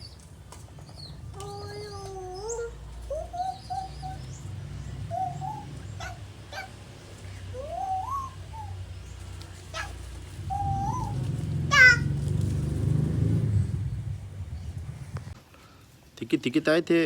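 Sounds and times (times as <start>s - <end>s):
person calling pigeons: 0.0s - 13.8s
faint bird chirps: 0.8s - 12.1s
steady low rumble: 1.0s - 15.4s.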